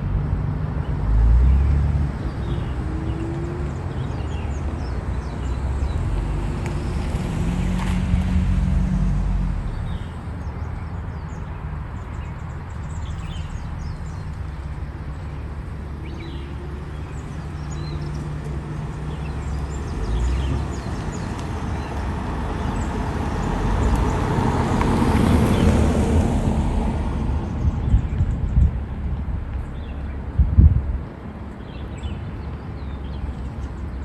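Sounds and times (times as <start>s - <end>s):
steady low rumble: 26.1s - 31.2s.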